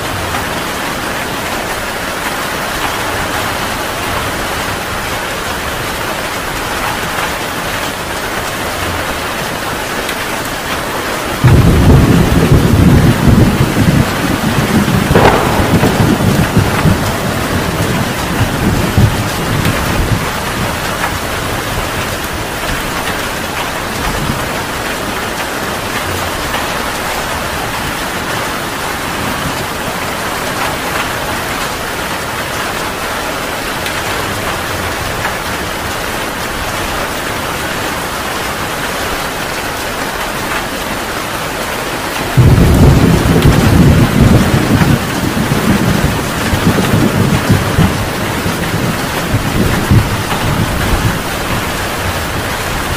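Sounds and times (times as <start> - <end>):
heavy rain falling: 0.0 - 52.9
thunder rumbling: 11.3 - 24.8, 42.3 - 52.9.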